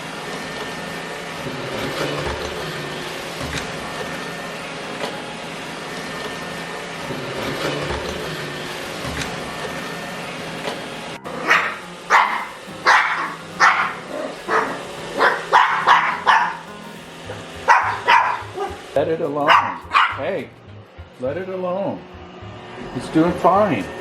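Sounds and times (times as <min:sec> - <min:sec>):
robot vacuum humming: 0:00.0 - 0:24.0
dog barking: 0:11.4 - 0:16.7, 0:17.6 - 0:18.9, 0:19.5 - 0:20.2.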